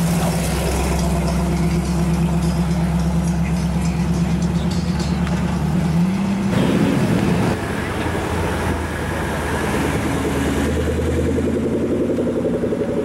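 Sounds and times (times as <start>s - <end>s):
car engine revving: 0.0s - 13.0s
car engine rumbling: 0.0s - 13.0s.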